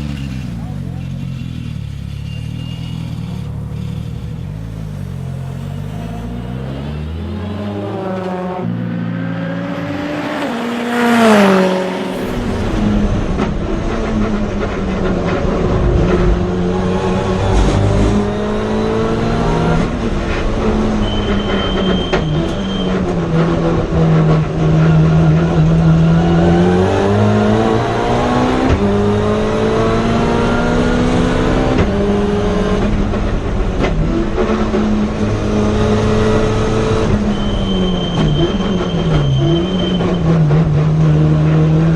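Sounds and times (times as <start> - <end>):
race car engine revving: 0.0 - 41.9
loud rush falling in pitch: 10.6 - 14.4.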